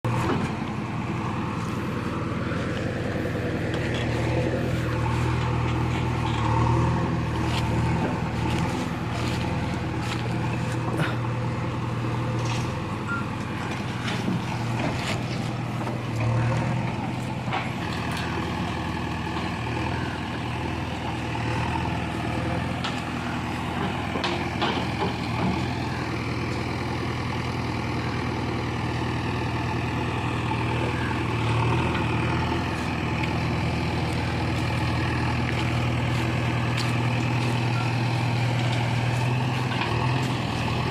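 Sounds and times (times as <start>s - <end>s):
heavy diesel engine running: 0.0s - 40.9s
machinery knocks and clatters: 23.7s - 25.7s.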